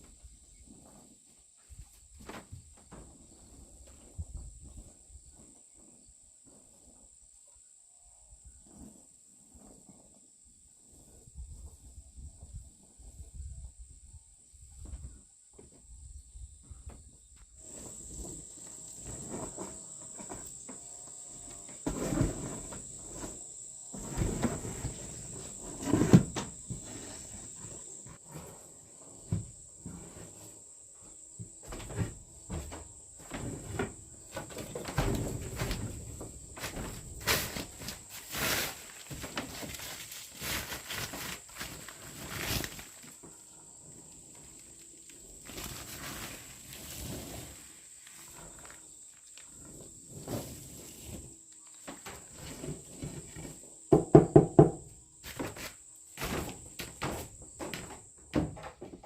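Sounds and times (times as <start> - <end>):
knocks clatter and scraping: 17.6 - 30.4, 49.6 - 59.0.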